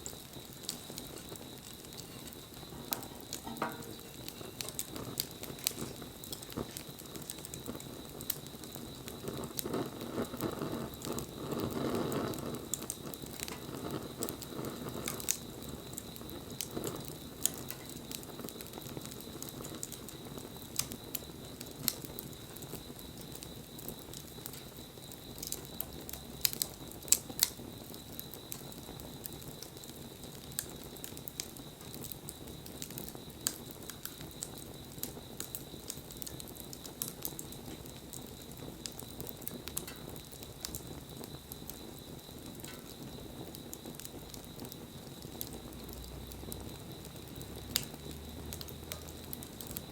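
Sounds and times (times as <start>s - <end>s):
bonfire crackling and popping: 0.0s - 49.9s
flames rushing: 0.0s - 49.9s.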